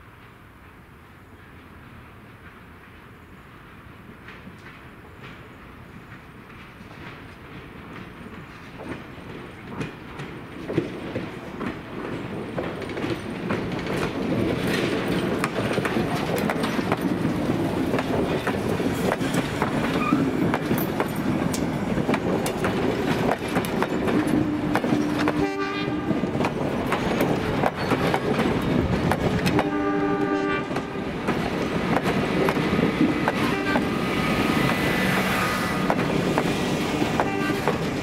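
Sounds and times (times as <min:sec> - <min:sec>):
train wheels clicking over rail joints: 0:01.4 - 0:38.0
train horn: 0:24.2 - 0:26.3, 0:29.5 - 0:31.1, 0:33.4 - 0:34.1, 0:37.1 - 0:37.8.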